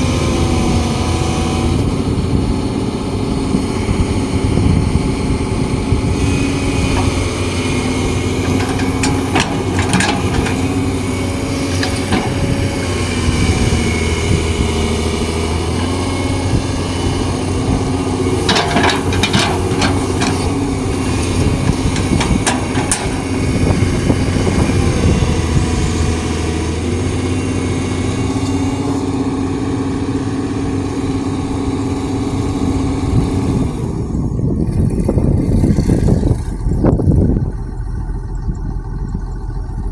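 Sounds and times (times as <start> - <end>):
excavator diesel engine running: 0.0 - 39.9
metallic clanks and rattles: 6.8 - 14.6, 15.5 - 25.6.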